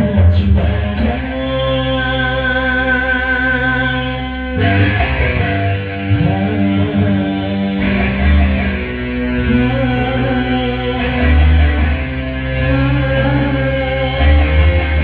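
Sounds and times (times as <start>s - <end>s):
bass line: 0.0s - 15.0s
guitar: 0.0s - 15.0s
instrumental band music: 4.1s - 15.0s.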